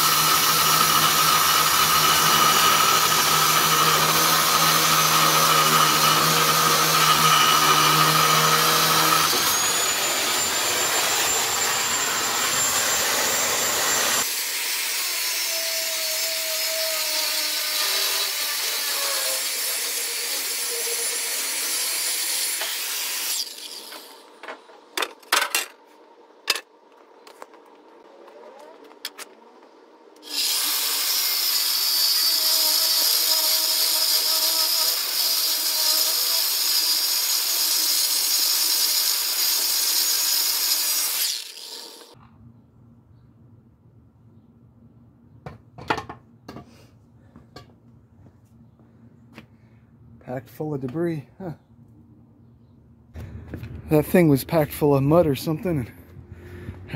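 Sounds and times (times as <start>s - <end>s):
saw grinding through steel: 0.0s - 24.2s, 30.2s - 42.2s.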